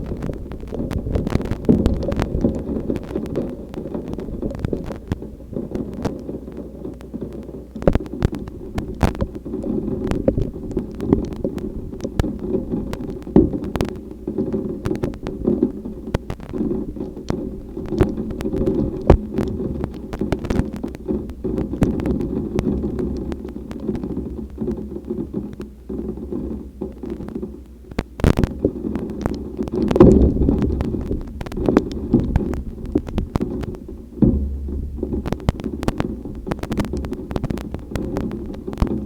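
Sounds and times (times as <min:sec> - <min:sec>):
wind buffeting microphone: 0:00.0 - 0:06.3, 0:28.3 - 0:39.0.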